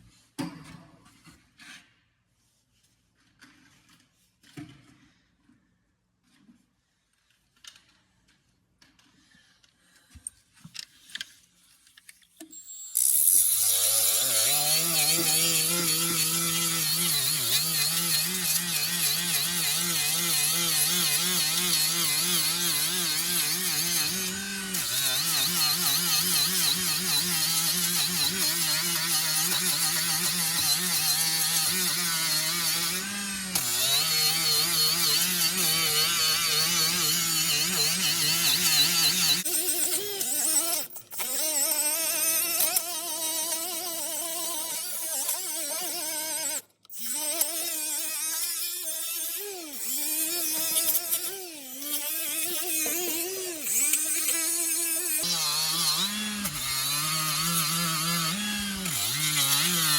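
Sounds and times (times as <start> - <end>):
power tool stripping paint: 12.5 - 59.9.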